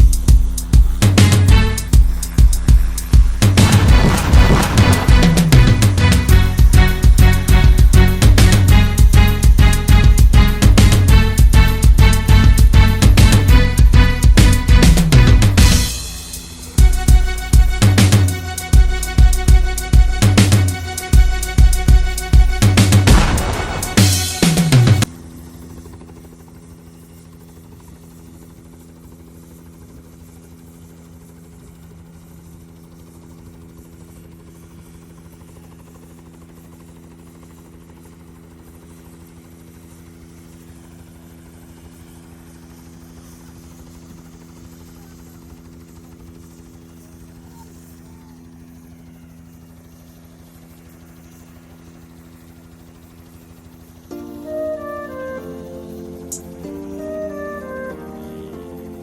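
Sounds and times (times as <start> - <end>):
music: 0.0 - 25.1, 54.0 - 59.0
steady low hum: 0.0 - 59.0.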